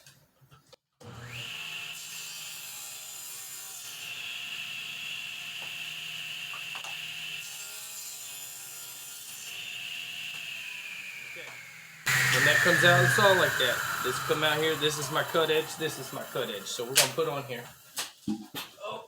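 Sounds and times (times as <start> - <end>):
table saw whining: 1.0 - 18.1.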